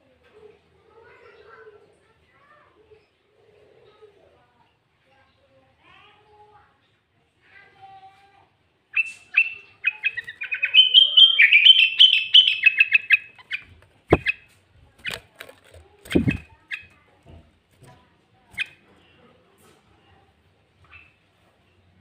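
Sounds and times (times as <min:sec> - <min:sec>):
bulbul chirping song: 0:09.0 - 0:14.4, 0:16.1 - 0:16.9
dull thumps: 0:15.1 - 0:16.5.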